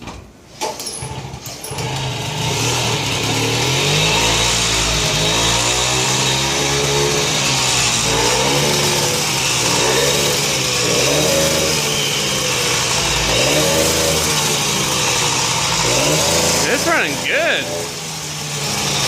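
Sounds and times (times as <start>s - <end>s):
moped engine revving: 1.0s - 19.0s.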